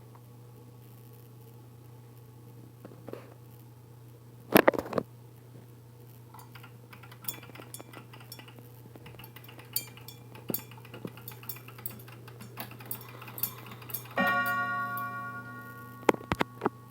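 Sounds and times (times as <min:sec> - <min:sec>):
steady low hum: 0:00.0 - 0:16.9
sharp metallic clicks and clinks: 0:06.4 - 0:16.7.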